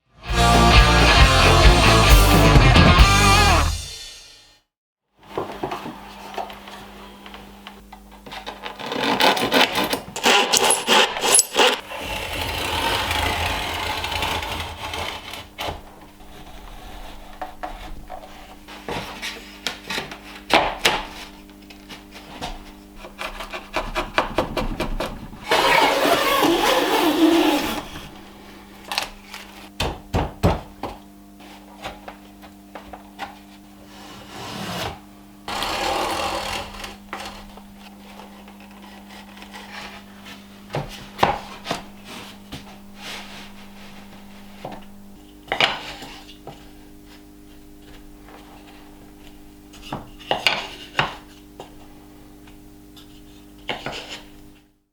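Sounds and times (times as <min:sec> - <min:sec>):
hand plane shaving wood: 0:08.2 - 0:20.1, 0:22.8 - 0:28.3, 0:33.9 - 0:40.4
drawknife scraping wood: 0:08.3 - 0:18.6, 0:23.0 - 0:24.6.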